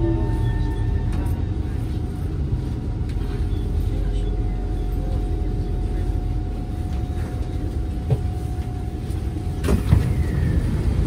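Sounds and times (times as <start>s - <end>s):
train interior rumble: 0.0s - 11.0s.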